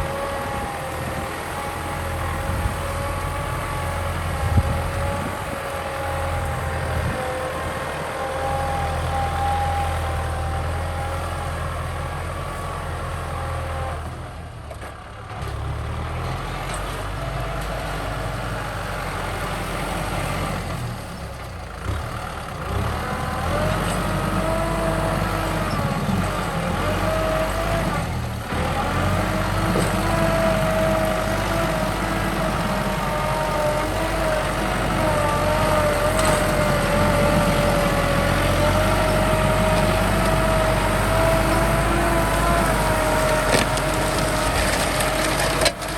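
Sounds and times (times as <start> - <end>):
tractor diesel engine under load: 0.0 - 45.9.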